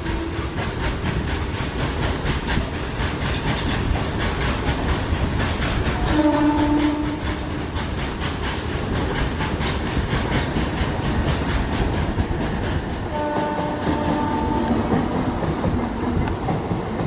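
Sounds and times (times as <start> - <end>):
train horn: 6.0 - 7.5, 13.1 - 15.1.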